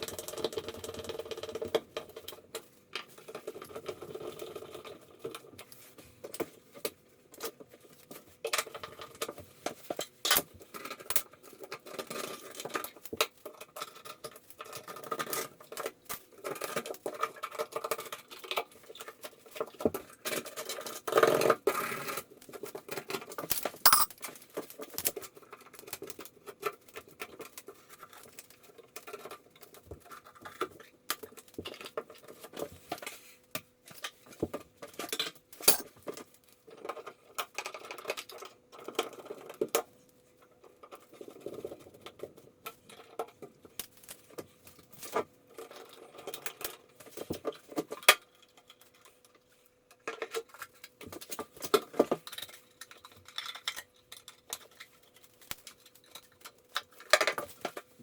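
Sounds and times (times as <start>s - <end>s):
tools clicking and knocking: 23.4s - 24.2s, 35.1s - 36.0s.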